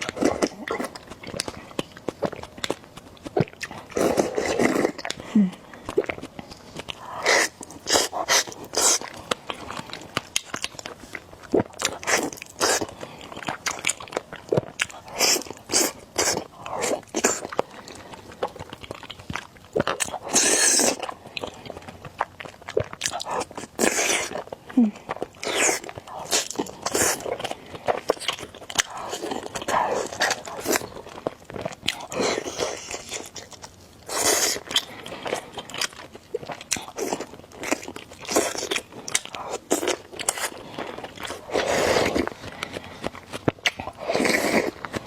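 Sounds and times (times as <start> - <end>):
chewing with wet mouth sounds: 0.0 - 45.0
slurping noodles: 41.3 - 43.0, 43.9 - 45.0.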